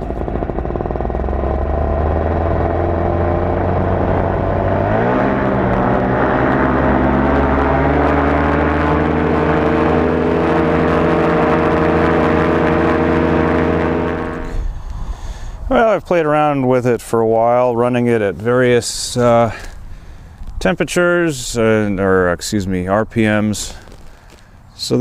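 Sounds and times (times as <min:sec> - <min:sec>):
paramotor engine running: 0:00.0 - 0:14.8.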